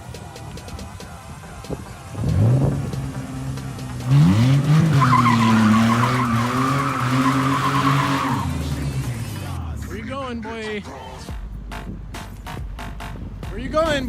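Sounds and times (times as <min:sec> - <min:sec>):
car engine revving: 0:00.0 - 0:13.5
tyres squealing: 0:00.4 - 0:11.2.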